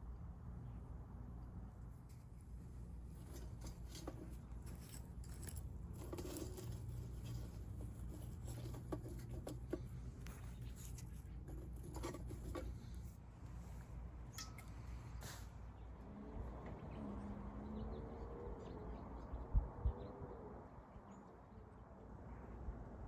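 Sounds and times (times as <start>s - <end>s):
small objects clicking and rustling: 3.1s - 13.1s.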